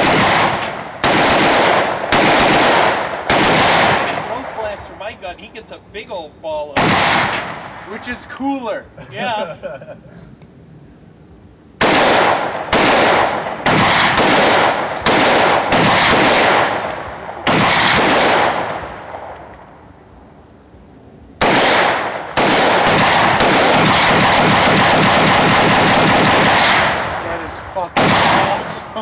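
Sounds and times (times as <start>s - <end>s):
rifle gunshots: 0.0s - 4.7s, 6.8s - 8.1s, 11.8s - 19.4s, 21.4s - 29.0s.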